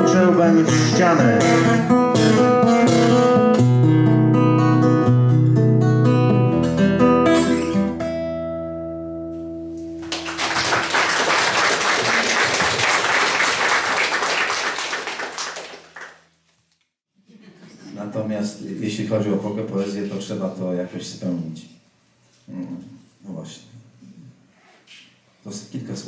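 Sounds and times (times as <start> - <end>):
acoustic guitar playing: 0.0 - 10.5
audience applause: 10.0 - 16.2.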